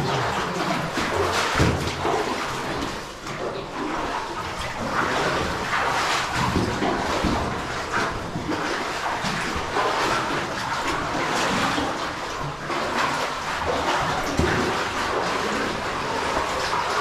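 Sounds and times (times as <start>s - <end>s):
water splashes: 0.0s - 17.0s.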